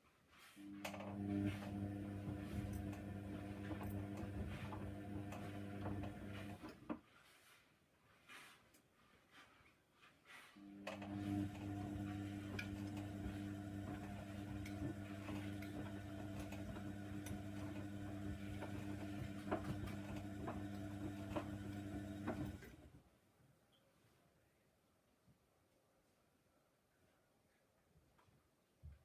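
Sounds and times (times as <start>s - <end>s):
washer dryer humming: 0.6s - 6.8s, 10.7s - 23.0s.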